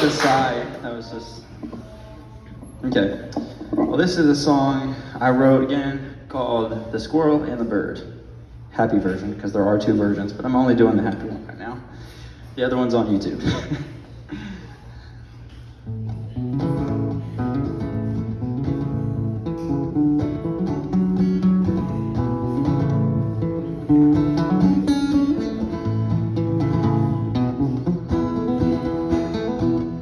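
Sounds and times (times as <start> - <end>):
acoustic guitar strumming: 15.8 - 30.0.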